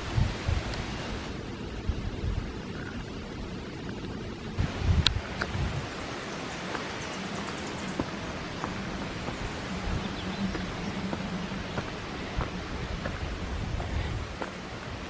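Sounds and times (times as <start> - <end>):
wind rushing through trees: 0.0 - 15.0.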